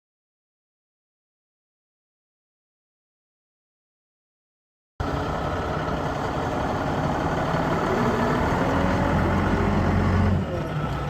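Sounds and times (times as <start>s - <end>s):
diesel truck engine idling: 5.0s - 11.0s.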